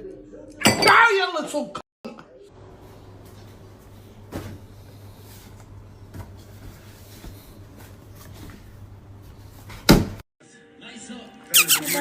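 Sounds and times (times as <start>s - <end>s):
indoor room hum: 2.4s - 10.2s.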